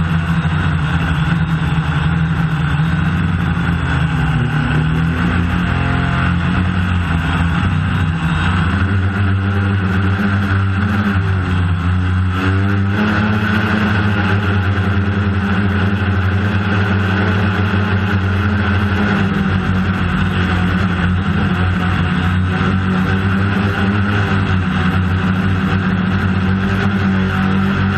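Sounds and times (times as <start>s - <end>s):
drone propellers humming: 0.0s - 27.9s.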